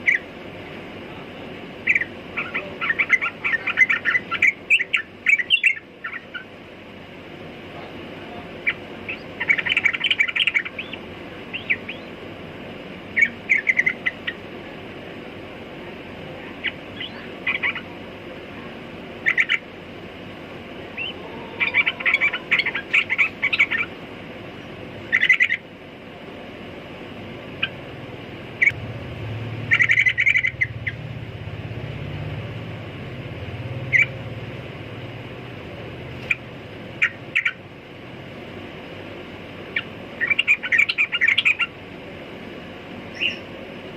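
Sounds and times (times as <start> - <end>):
steady background hiss: 0.0 - 43.9
bird singing chirping notes: 1.8 - 6.5, 8.6 - 12.2, 16.6 - 17.9, 20.9 - 25.6, 29.5 - 31.1, 33.7 - 34.3, 43.1 - 43.5.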